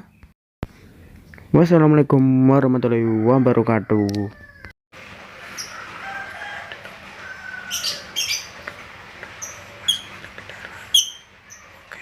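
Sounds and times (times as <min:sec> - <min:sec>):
lovebirds chirping: 0:06.8 - 0:12.0.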